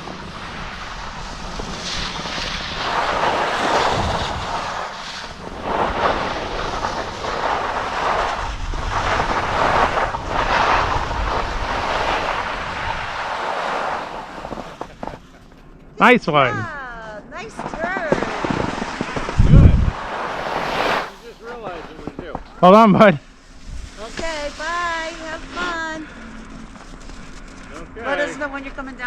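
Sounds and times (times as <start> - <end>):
wind on microphone: 0.0 - 14.8, 18.3 - 21.2
skis scraping over snow: 0.0 - 16.7, 17.4 - 29.0.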